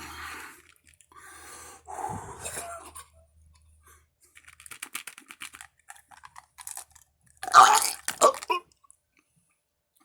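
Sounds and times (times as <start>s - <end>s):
crunching and chewing: 4.6s - 9.0s.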